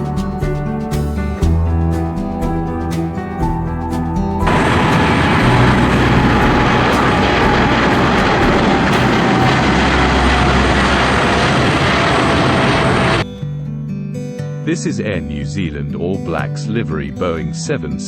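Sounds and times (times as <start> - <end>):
jet engines rushing and whining: 4.2 - 13.2.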